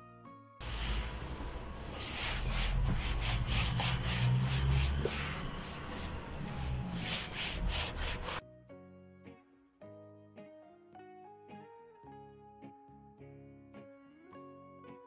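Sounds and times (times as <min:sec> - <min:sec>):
rapid scraping strokes: 0:00.6 - 0:08.4.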